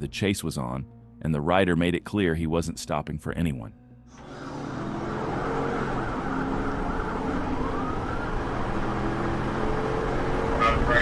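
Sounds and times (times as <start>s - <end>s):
car engine and road noise: 4.0s - 11.0s
police siren wailing: 4.2s - 11.0s.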